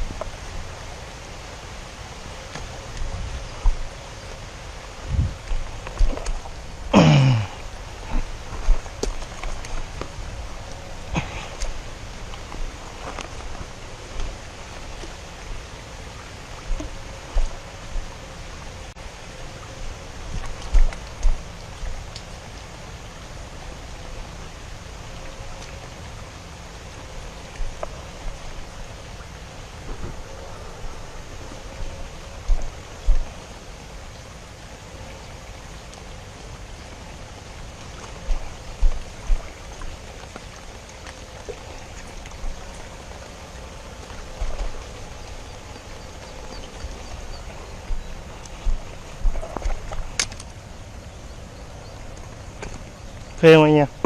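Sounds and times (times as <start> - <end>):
rain falling: 0.0 - 54.0
low thumps: 5.0 - 6.4.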